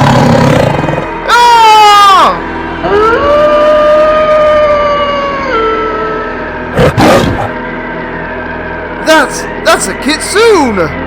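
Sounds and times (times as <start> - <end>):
long animal howl: 0.0 - 7.6.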